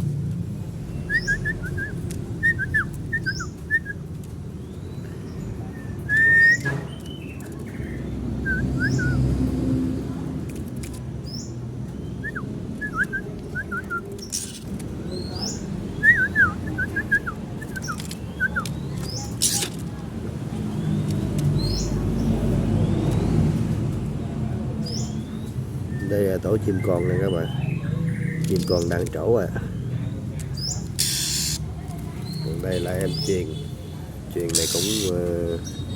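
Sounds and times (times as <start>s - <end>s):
small birds chirping: 0.0s - 35.9s
thin high chirp: 0.9s - 4.0s, 30.6s - 32.5s, 34.5s - 35.8s
sharp clicks: 20.9s - 21.7s, 30.4s - 32.1s, 34.4s - 35.1s.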